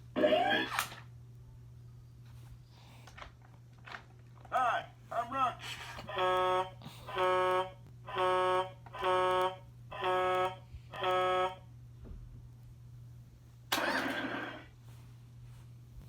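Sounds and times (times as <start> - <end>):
buzzy electronic toy beeps: 6.2 - 11.6.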